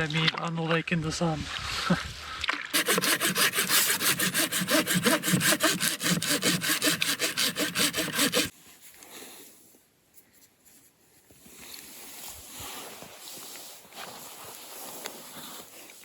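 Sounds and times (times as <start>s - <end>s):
hand saw cutting wood: 2.8s - 8.5s.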